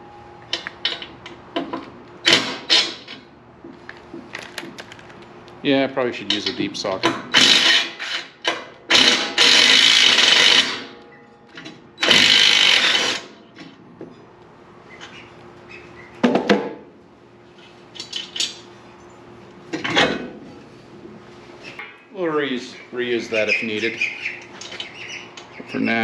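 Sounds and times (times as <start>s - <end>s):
loud rasping bursts: 7.3s - 8.3s, 8.9s - 10.9s, 12.0s - 13.3s.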